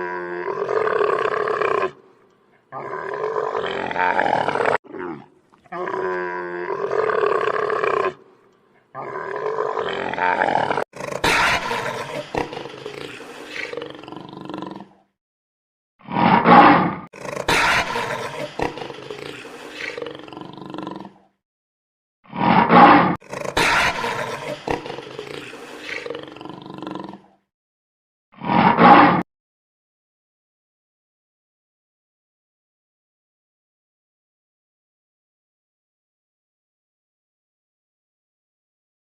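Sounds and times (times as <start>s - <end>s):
large animal roaring: 0.0s - 2.0s, 2.7s - 8.2s, 8.9s - 15.0s, 16.2s - 21.3s, 22.4s - 27.4s.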